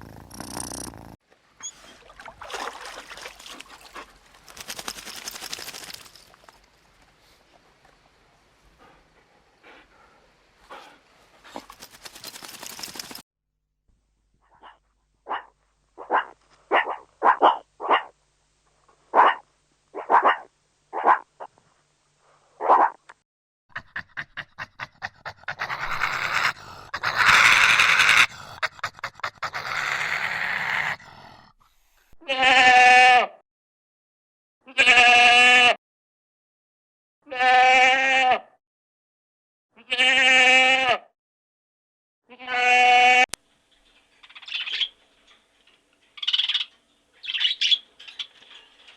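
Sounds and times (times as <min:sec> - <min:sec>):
rapid clicking: 0:11.7 - 0:13.2
dog barks: 0:14.5 - 0:18.2, 0:19.1 - 0:21.5, 0:22.6 - 0:23.0
goat or sheep bleating: 0:32.2 - 0:33.4, 0:34.7 - 0:35.8, 0:37.3 - 0:38.5, 0:39.8 - 0:41.1, 0:42.3 - 0:43.2.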